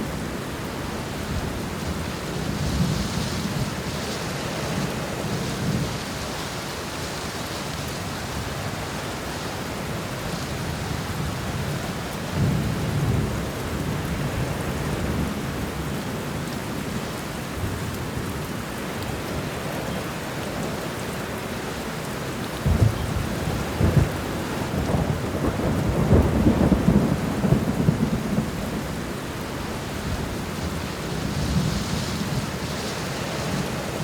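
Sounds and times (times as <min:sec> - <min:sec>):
heavy rain falling: 0:00.0 - 0:34.0
thunder rolling: 0:22.6 - 0:28.9.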